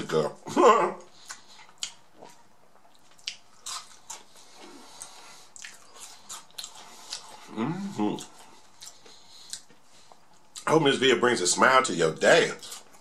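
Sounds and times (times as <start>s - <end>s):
person chewing food: 1.0s - 10.7s, 12.6s - 13.0s.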